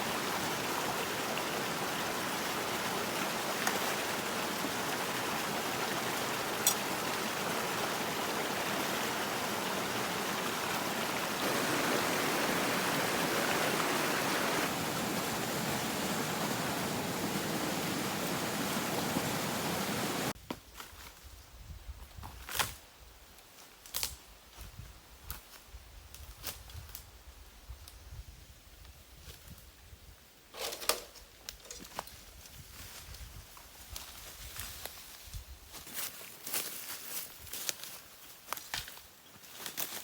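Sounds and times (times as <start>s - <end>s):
flowing water rushing: 0.0s - 20.4s.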